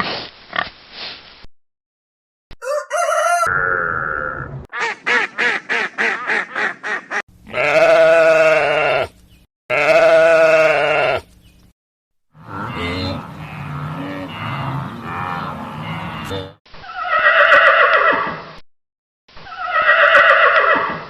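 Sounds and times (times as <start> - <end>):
wavering bleats: 7.4 - 11.3, 12.4 - 17.2
farm animal calls: 12.4 - 18.2.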